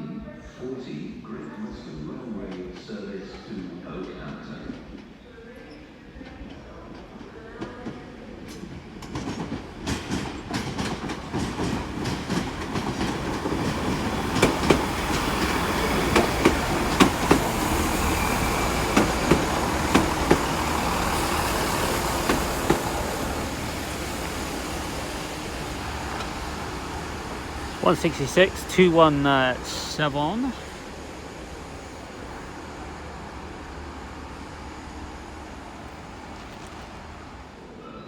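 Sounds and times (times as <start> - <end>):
diesel train passing: 1.2 - 38.0
wheels clacking over rail joints: 7.0 - 28.6.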